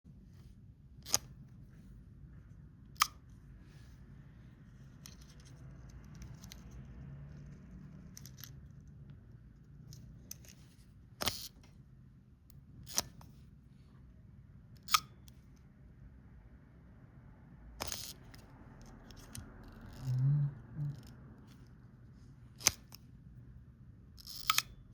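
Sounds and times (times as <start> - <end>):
camera handling clicks and scraping: 1.0 - 1.8, 4.8 - 7.5, 8.1 - 8.6, 9.9 - 11.8, 12.8 - 13.4, 17.8 - 20.1, 22.6 - 23.1.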